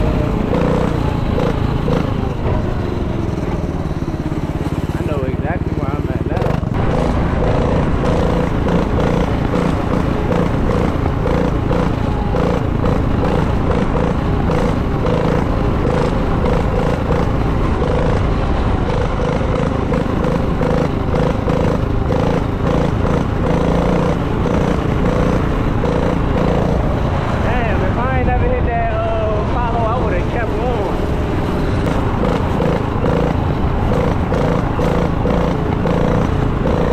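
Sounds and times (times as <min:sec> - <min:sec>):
small engine running loud: 0:00.0 - 0:36.9.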